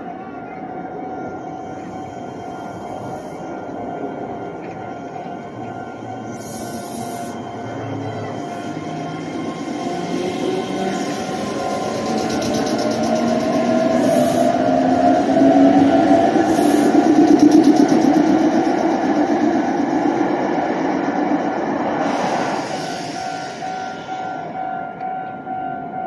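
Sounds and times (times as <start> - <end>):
wheels rumbling on rail: 0.0 - 26.0
train traction motors whining: 1.6 - 25.6.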